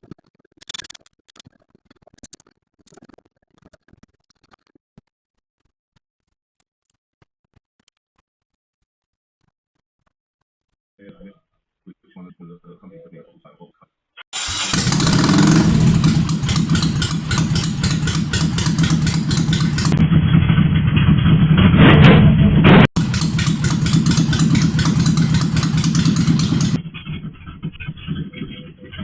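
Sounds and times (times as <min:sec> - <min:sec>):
motorcycle engine revving: 0:14.4 - 0:20.6, 0:22.9 - 0:26.8.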